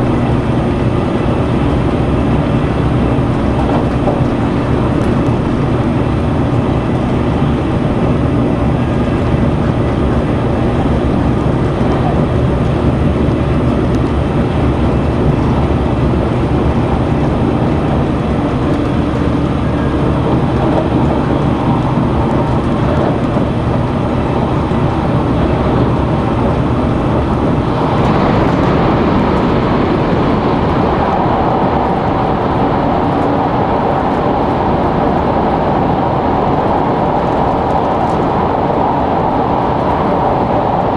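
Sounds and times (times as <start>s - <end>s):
train wheels rumbling on rail: 0.0s - 40.9s.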